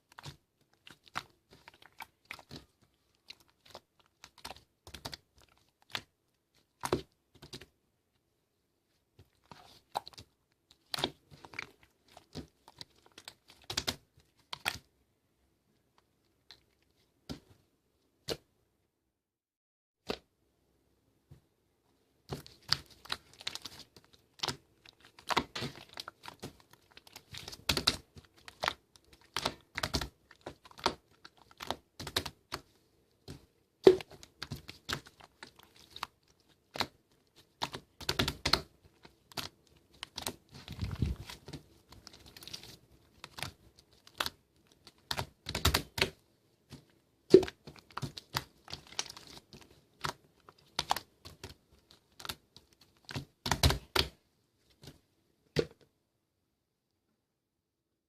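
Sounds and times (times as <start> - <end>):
slime clicking and popping: 22.4 - 32.6, 37.6 - 38.7, 43.2 - 46.2, 53.0 - 54.1.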